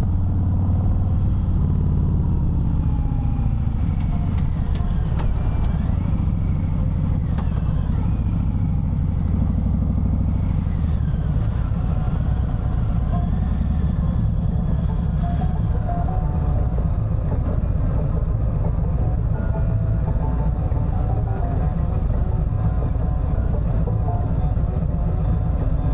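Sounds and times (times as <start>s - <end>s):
motorcycle engine rumbling: 0.0s - 25.9s.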